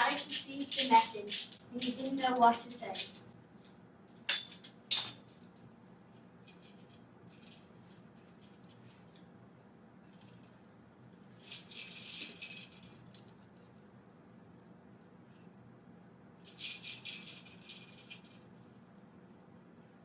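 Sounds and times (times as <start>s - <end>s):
shaken rattling: 0.0s - 3.8s, 11.4s - 13.3s, 16.5s - 18.5s
metallic clicks and jingles: 0.0s - 5.8s, 6.4s - 9.2s, 10.1s - 10.6s, 11.4s - 13.4s, 16.5s - 18.5s.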